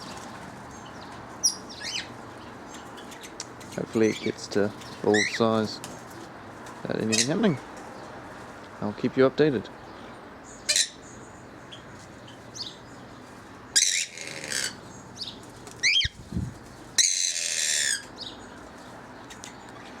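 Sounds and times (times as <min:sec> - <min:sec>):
parrots chirping: 0:00.8 - 0:05.4, 0:10.5 - 0:13.0, 0:13.7 - 0:16.2, 0:16.9 - 0:18.5
parrots screeching harshly: 0:07.1 - 0:07.4, 0:10.6 - 0:11.0, 0:13.7 - 0:14.8, 0:15.8 - 0:16.2, 0:17.0 - 0:18.2.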